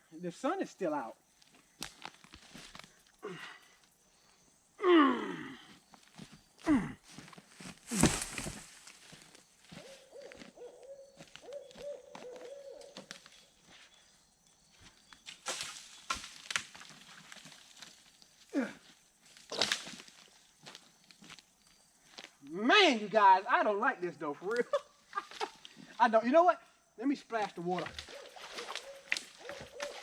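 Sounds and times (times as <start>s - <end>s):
owl hooting: 9.7s - 13.5s, 28.1s - 30.0s.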